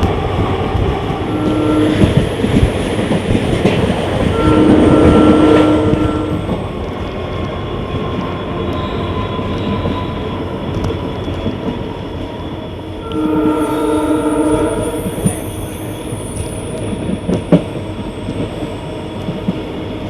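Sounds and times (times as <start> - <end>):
train wheels on track: 0.0 - 20.0
held multi-tone horn: 1.3 - 2.7, 4.2 - 6.6, 13.0 - 16.0.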